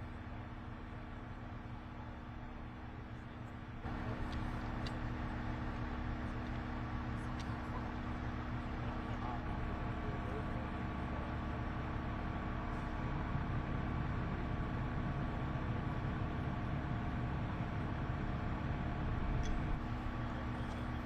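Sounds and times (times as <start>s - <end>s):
engine hum: 0.0s - 21.0s
faint voices: 1.1s - 13.4s.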